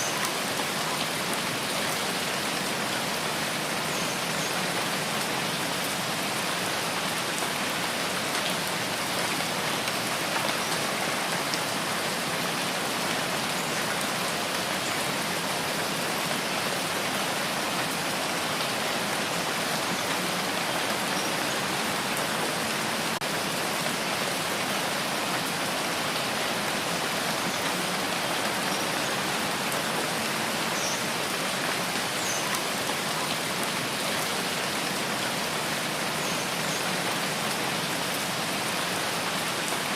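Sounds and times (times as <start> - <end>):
small rain patters: 0.0 - 39.9
steady rain hiss: 0.0 - 39.9.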